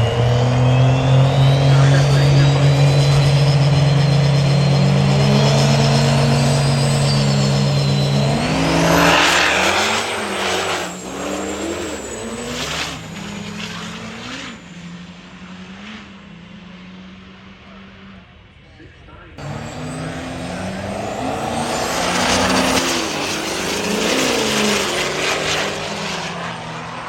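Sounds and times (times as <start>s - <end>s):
turbo whistle: 0.0s - 12.5s
diesel truck engine revving: 0.0s - 18.3s, 19.3s - 27.0s.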